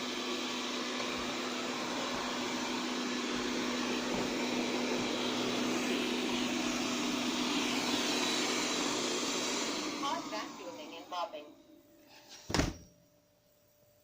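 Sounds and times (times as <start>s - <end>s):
robot vacuum suction fan whirring: 0.0s - 11.5s.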